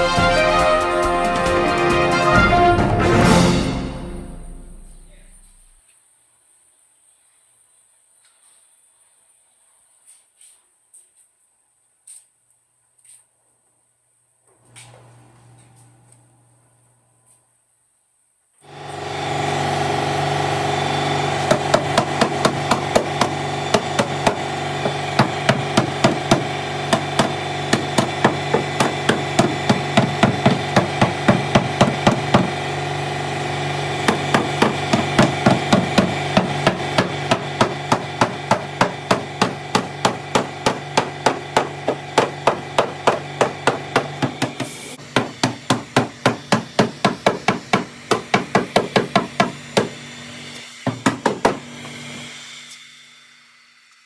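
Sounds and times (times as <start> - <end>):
hammer tapping on sheet metal: 21.4 - 32.6, 34.0 - 50.0, 50.9 - 51.7.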